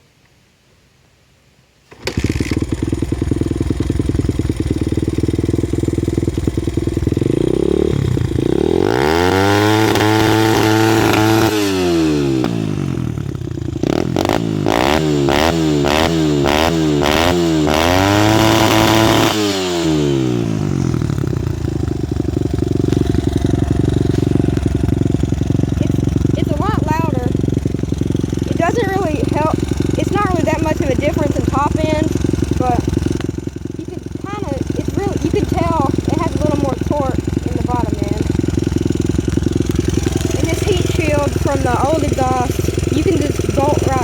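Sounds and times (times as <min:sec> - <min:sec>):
dirt bike engine idling and revving: 0:01.9 - 0:44.0.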